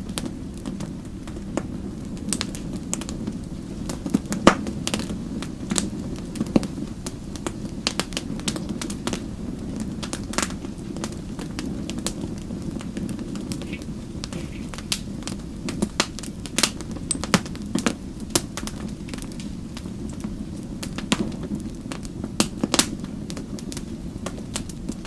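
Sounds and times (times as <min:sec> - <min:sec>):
wood fire crackling: 0:00.0 - 0:25.0
sharp pops and snaps: 0:13.5 - 0:15.0.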